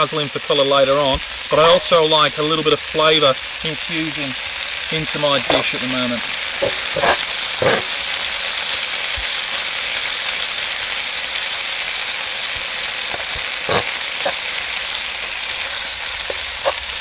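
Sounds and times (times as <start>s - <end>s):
food sizzling in frying pan: 0.0s - 17.0s
metal tongs knocking pan: 5.4s - 8.0s, 13.1s - 14.4s.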